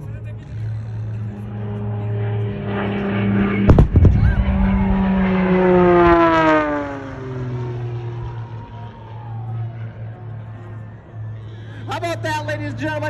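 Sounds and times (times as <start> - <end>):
plane engine flying by: 0.0 - 13.0
explosion blast: 3.6 - 6.6.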